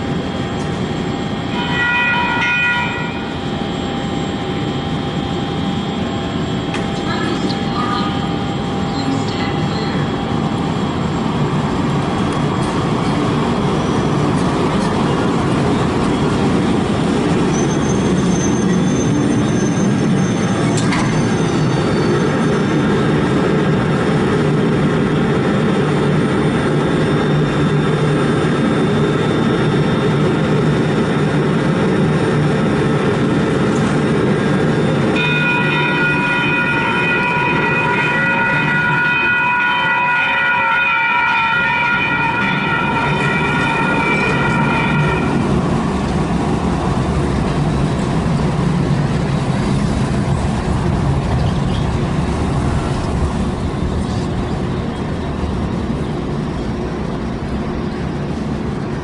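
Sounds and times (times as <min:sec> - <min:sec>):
light rail train rumble: 0:00.0 - 0:59.0
high wheel squeal: 0:17.3 - 0:23.0.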